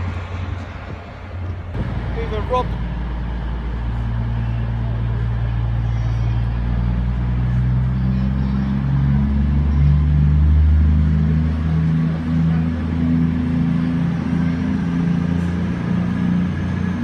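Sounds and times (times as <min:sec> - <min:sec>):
diesel train engine droning: 0:00.0 - 0:17.0.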